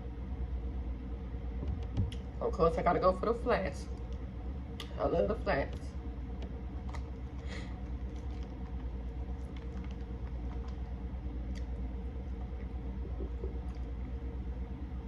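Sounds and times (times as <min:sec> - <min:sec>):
steady low hum: 0:00.0 - 0:15.0
chewing with wet clicks: 0:06.4 - 0:14.2
lip smacks: 0:06.8 - 0:14.1.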